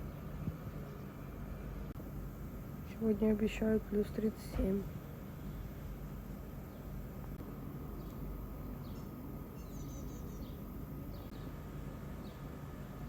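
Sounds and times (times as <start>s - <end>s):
low outdoor rumble: 0.0s - 13.0s
small birds chirping: 6.6s - 7.0s, 7.8s - 11.6s, 12.2s - 12.6s.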